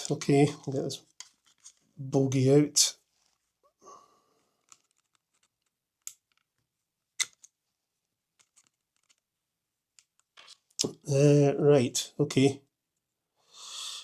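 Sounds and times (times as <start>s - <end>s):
small plastic clicks and taps: 6.0s - 6.5s, 7.2s - 7.5s.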